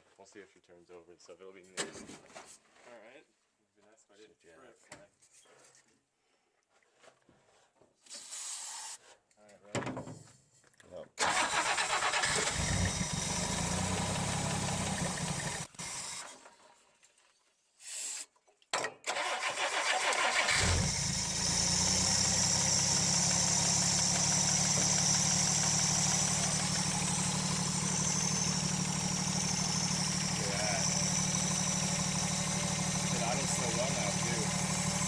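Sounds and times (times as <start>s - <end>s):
starter cranking engine: 11.2s - 16.4s, 19.1s - 35.0s
car engine running: 12.0s - 15.7s, 20.5s - 35.0s.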